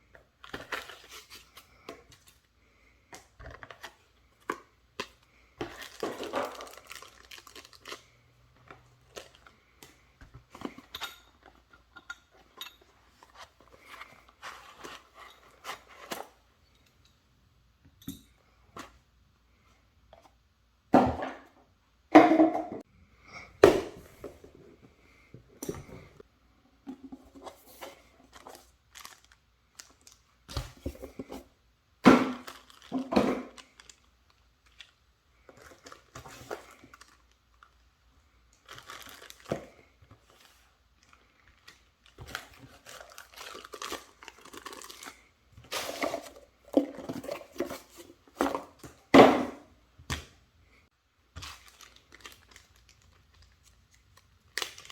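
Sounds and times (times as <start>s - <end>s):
packaging crinkling and tearing: 5.6s - 8.2s, 28.4s - 30.2s, 32.4s - 35.0s, 38.5s - 46.4s, 51.4s - 54.9s.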